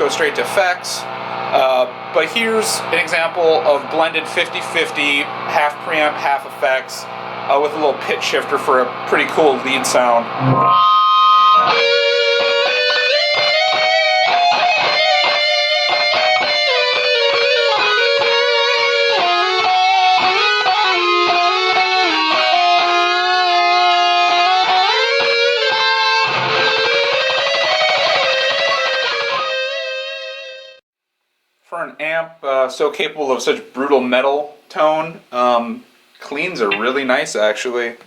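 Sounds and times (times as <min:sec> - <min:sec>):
distorted electric guitar lead: 0:00.0 - 0:30.8.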